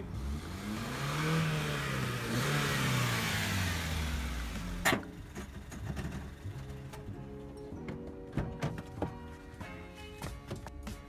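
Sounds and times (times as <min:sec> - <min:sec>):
car engine pulling away: 0:00.0 - 0:08.2
road noise: 0:00.0 - 0:11.0.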